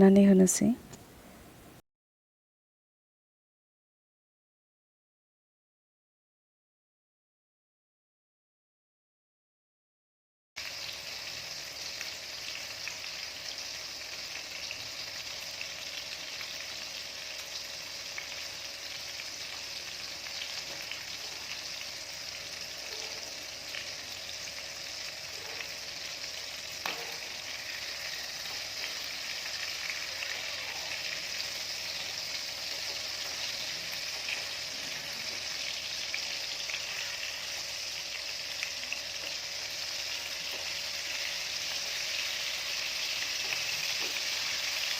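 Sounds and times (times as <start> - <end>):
chicken frying in a pan: 10.6 - 44.9.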